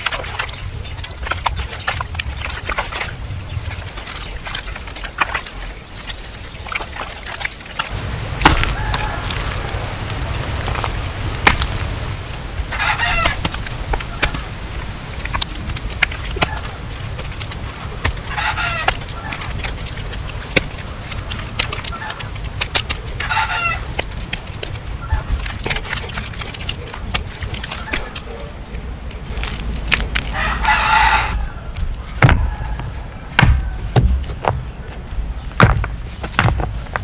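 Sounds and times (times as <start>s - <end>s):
chicken calls: 7.9s - 14.6s, 17.9s - 19.5s, 23.2s - 24.0s, 27.6s - 34.9s
rooster crowing: 8.5s - 9.9s, 12.7s - 13.4s, 30.3s - 33.8s
heavy thumps: 31.3s - 37.0s
knocks and taps: 31.8s - 34.7s.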